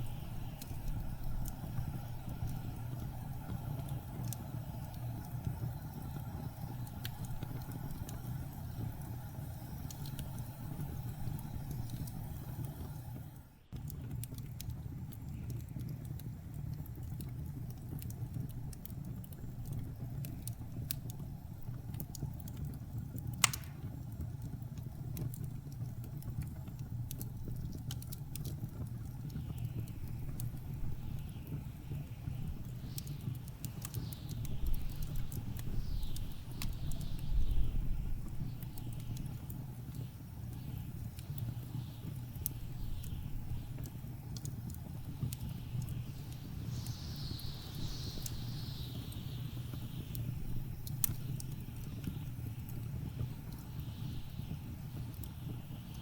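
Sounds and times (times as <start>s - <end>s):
low rumble of blizzard wind: 0.0s - 56.0s
wood fire crackling and popping: 0.0s - 56.0s
whistling wind gusts: 41.9s - 56.0s.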